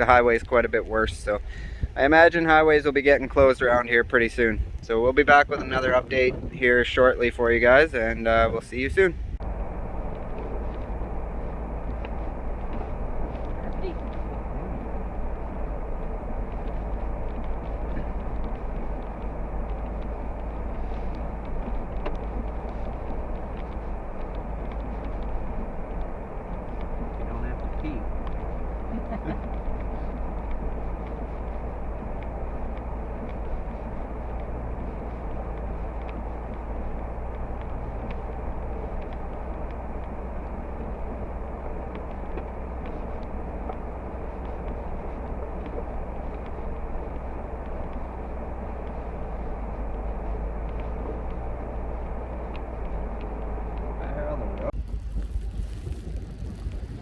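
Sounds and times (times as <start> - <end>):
road and engine rumble: 0.0 - 57.0
faint ticks: 10.0 - 54.7.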